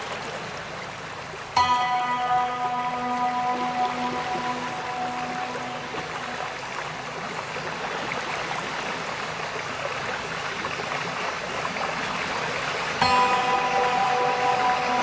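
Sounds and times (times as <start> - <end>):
steady held tones: 1.6 - 7.2, 13.0 - 15.0.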